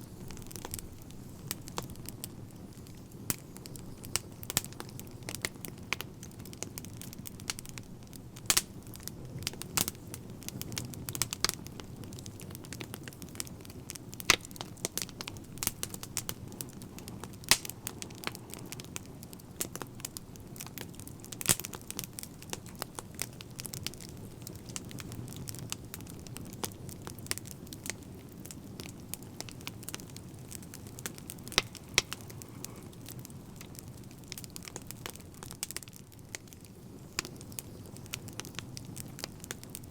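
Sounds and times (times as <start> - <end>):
wood fire crackling: 0.0 - 39.9
sharp pops and snaps: 31.0 - 32.8.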